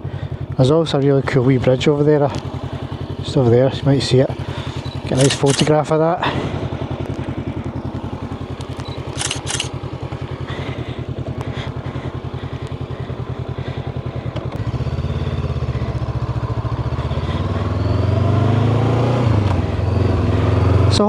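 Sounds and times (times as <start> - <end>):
motorcycle engine idling: 0.0 - 21.0
louder engine rising in pitch: 0.6 - 21.0
short clicks: 4.7 - 5.8, 8.6 - 9.8.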